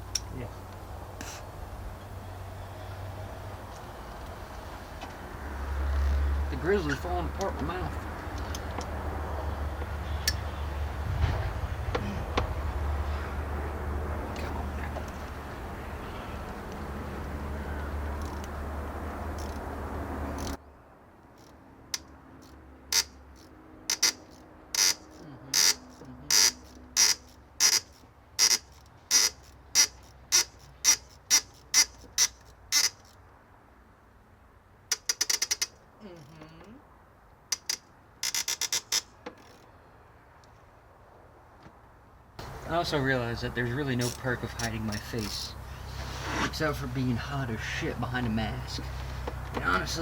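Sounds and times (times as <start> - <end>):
ratchet wrench clicking: 5.8 - 6.2, 18.1 - 18.6, 19.3 - 19.7, 20.3 - 20.6, 21.3 - 33.2, 34.9 - 35.8, 37.5 - 39.7, 44.0 - 45.6.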